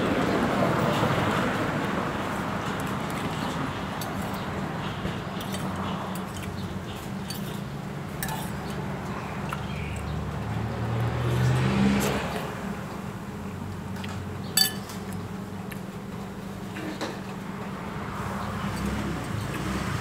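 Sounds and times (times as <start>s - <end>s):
low traffic hum: 0.0s - 20.0s
cutlery clinking against a plate: 5.4s - 8.8s, 14.1s - 15.2s
vehicle passing: 8.5s - 13.7s, 17.7s - 20.0s.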